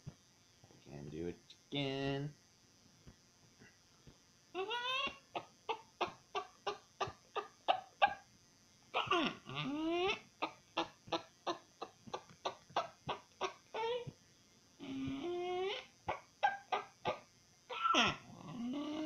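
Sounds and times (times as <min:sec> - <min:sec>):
person imitating chicken clucks: 0:09.0 - 0:14.2, 0:14.8 - 0:19.0.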